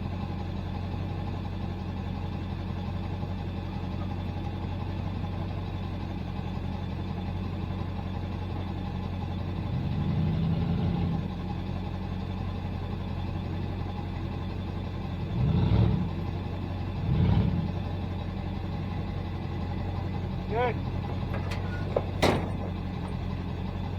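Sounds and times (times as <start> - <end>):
truck engine idling: 0.0 - 23.9
engine revving: 15.3 - 16.2, 17.0 - 17.9.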